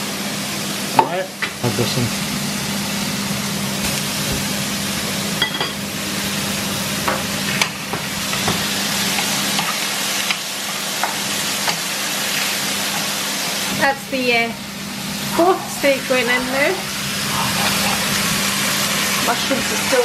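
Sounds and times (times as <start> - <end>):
mushrooms frying: 0.0 - 20.0
steak sizzling in a pan: 2.0 - 20.0
utensils knocking against pans: 5.4 - 5.8.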